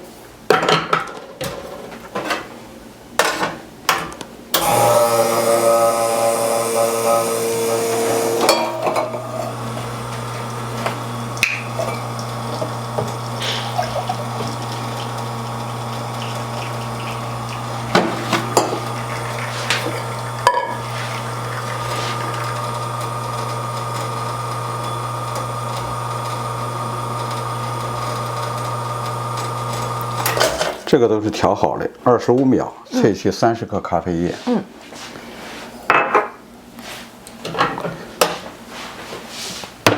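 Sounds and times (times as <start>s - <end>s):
espresso machine hum: 4.6s - 30.8s
liquid dripping and filling: 7.5s - 30.7s
cups and metal parts clinking: 8.4s - 9.6s, 16.3s - 22.6s.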